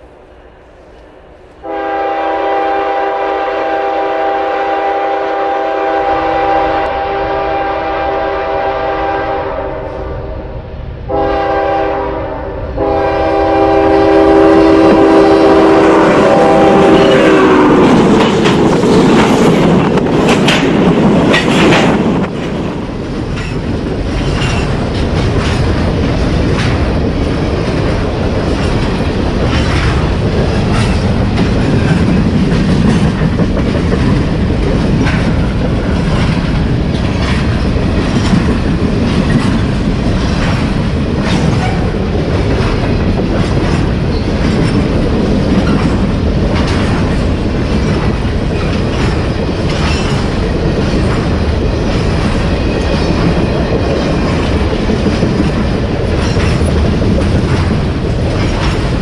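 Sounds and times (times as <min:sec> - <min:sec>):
diesel locomotive passing: 0:00.0 - 0:59.0
train wheels clacking over rail joints: 0:12.8 - 0:59.0.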